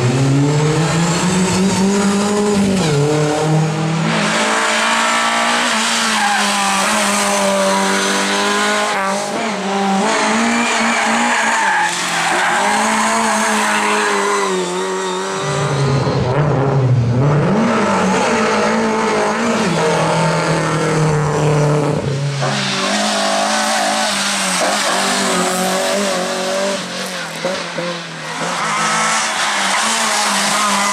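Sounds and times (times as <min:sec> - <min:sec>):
rally car engine revving: 0:00.0 - 0:30.9
tyre squeal: 0:28.3 - 0:30.9.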